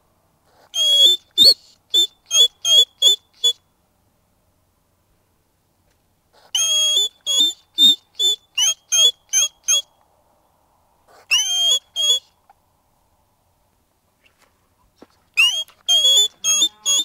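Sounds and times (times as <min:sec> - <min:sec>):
small animal squeaky calls: 0:00.6 - 0:03.6, 0:06.4 - 0:09.9, 0:11.1 - 0:12.3, 0:15.4 - 0:17.0.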